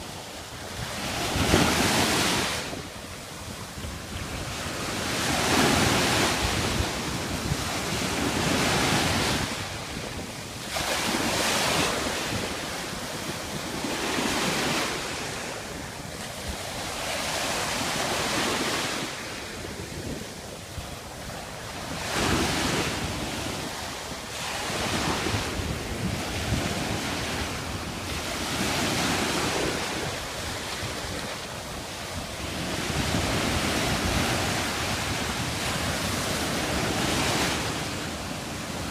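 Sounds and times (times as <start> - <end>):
ocean waves breaking: 0.0 - 38.9
wind buffeting microphone: 0.0 - 38.9.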